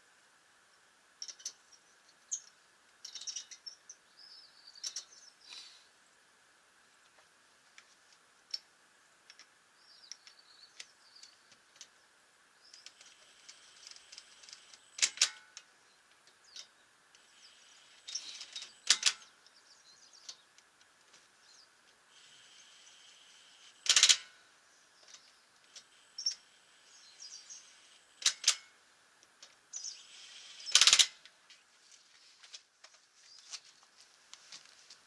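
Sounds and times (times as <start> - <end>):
small birds chirping: 1.2 - 6.2, 9.3 - 28.5, 29.2 - 31.0, 33.0 - 33.8.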